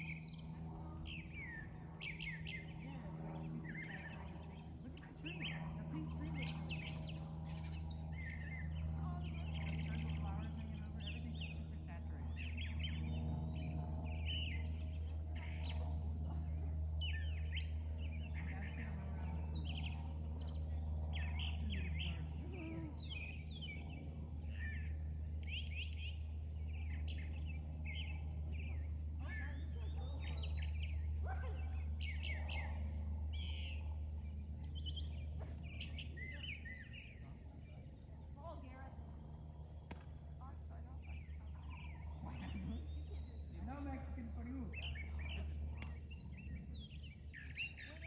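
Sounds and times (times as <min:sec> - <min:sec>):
birds chirping: 0:00.0 - 0:48.0
steady low rumble: 0:00.0 - 0:48.0.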